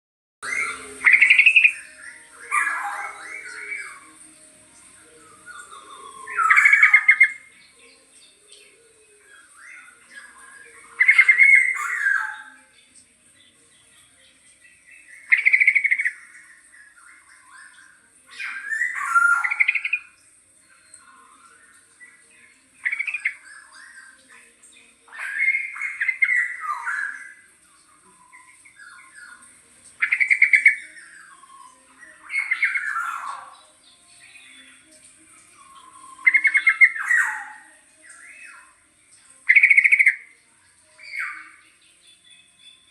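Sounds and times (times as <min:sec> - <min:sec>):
young oriole squawks: 0:00.4 - 0:04.2, 0:09.4 - 0:12.7, 0:18.3 - 0:20.2, 0:35.6 - 0:37.8
quiet bird practice notes: 0:00.4 - 0:42.9
young oriole calling: 0:00.4 - 0:42.9.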